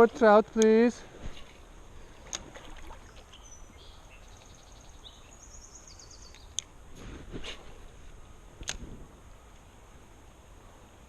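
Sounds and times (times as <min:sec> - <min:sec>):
small birds chirping: 0:02.9 - 0:06.8.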